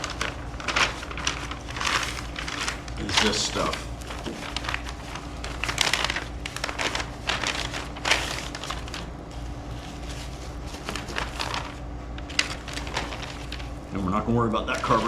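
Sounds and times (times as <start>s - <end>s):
packaging crinkling: 0.0s - 13.9s, 14.7s - 15.0s.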